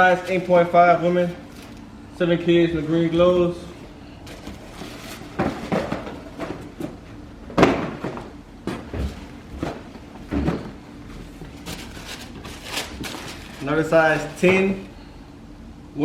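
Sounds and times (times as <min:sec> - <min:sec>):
cardboard boxes knocking and scraping: 0:04.3 - 0:13.3.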